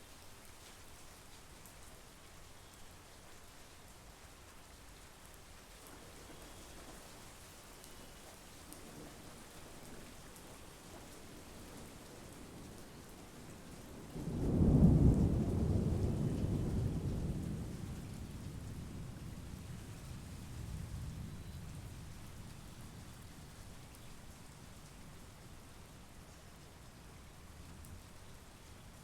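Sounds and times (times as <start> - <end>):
steady rain falling: 0.0 - 29.0
low thunder rumble: 11.6 - 23.5.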